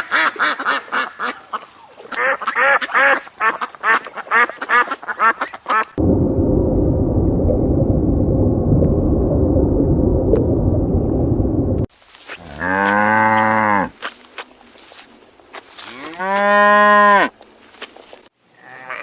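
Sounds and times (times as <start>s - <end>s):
duck quacking: 0.0s - 6.0s
dense low noise: 6.0s - 11.9s
cow mooing: 18.6s - 19.0s.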